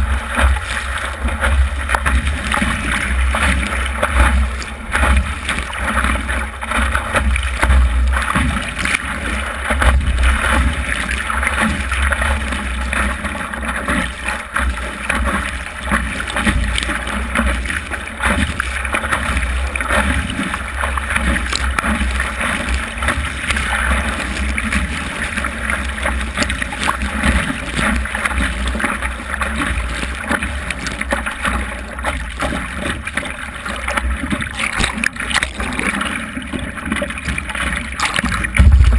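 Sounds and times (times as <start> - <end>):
wind buffeting microphone: 38.6 - 38.9.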